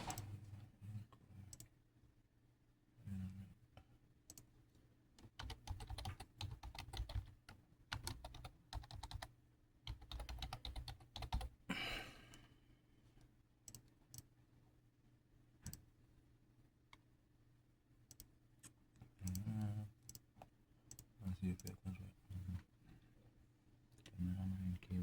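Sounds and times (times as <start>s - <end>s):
keyboard typing: 0.0s - 0.4s, 5.2s - 9.3s, 9.9s - 11.6s, 19.2s - 20.3s.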